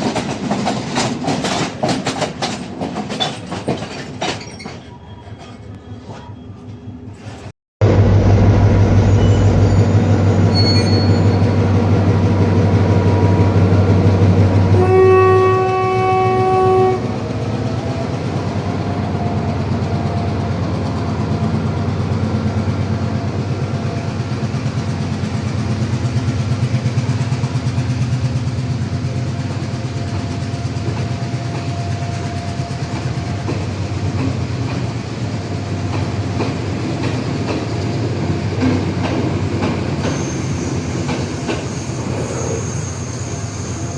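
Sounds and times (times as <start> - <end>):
diesel train rumbling: 0.0 - 43.9
train horn: 14.7 - 17.2.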